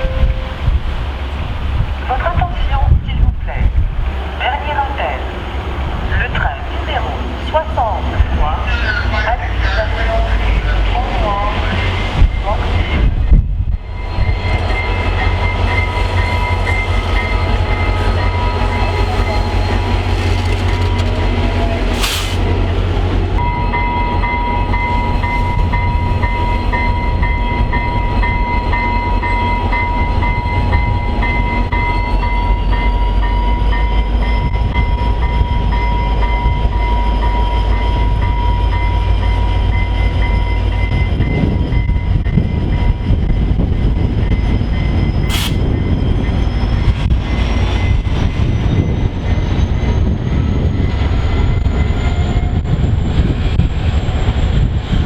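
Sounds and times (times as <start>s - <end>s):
high ringing tones: 0.0s - 0.8s
train wheels rumbling on rails: 5.2s - 55.0s.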